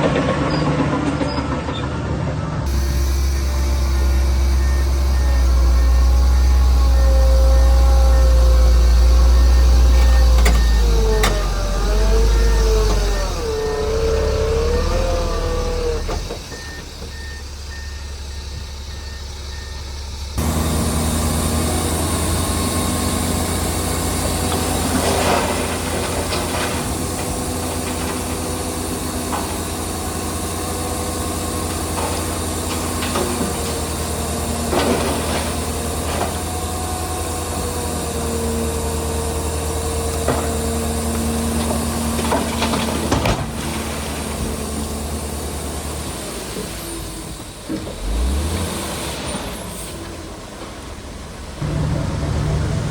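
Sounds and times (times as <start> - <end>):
diesel earthmoving machinery running: 0.0 - 52.9
faint repeating beep: 3.2 - 8.4.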